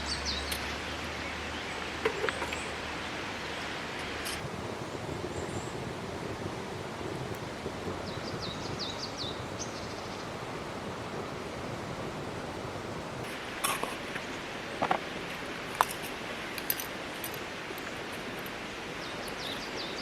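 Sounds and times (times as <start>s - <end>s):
bird chirping: 0.0s - 2.8s, 8.0s - 10.3s, 19.0s - 20.0s
river rushing: 0.0s - 20.0s.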